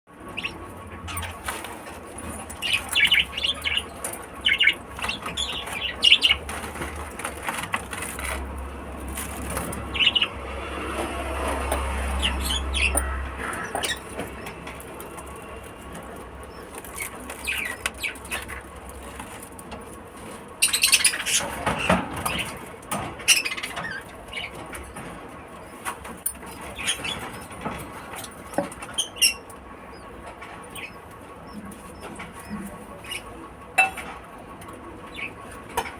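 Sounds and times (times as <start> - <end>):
lovebirds chirping: 2.2 - 8.0, 11.8 - 14.6, 15.3 - 18.6, 20.6 - 22.6, 28.5 - 30.1.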